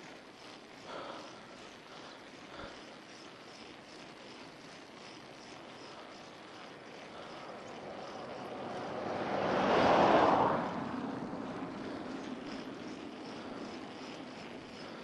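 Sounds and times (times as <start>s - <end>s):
motor vehicle passing: 4.6s - 15.0s.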